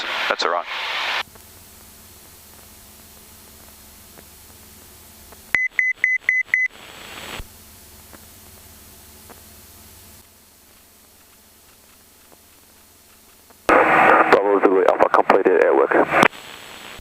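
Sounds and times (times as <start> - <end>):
steady intercom hiss: 0.0 - 1.2, 13.7 - 17.0
radio hiss: 0.0 - 1.3, 6.5 - 7.5, 10.6 - 17.0.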